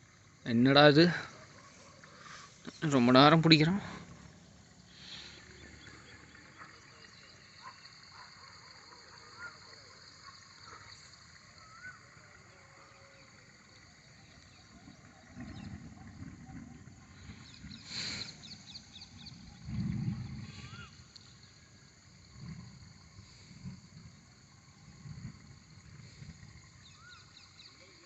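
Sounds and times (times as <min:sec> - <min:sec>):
faint chirps: 0:00.0 - 0:28.0
high-pitched insect chorus: 0:00.0 - 0:28.0
low rumble: 0:18.5 - 0:26.8.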